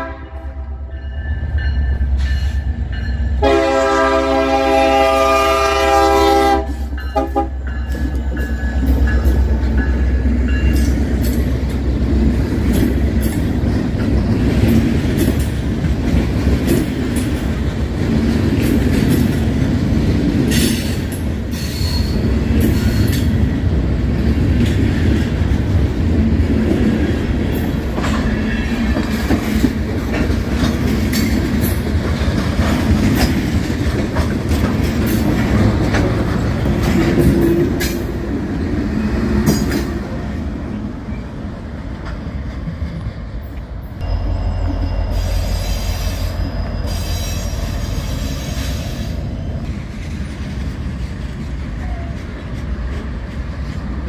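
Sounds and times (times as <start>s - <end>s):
diesel locomotive engine rumbling: 0.0s - 54.0s
train wheel squeal: 0.9s - 3.3s, 20.5s - 23.4s, 43.9s - 49.7s.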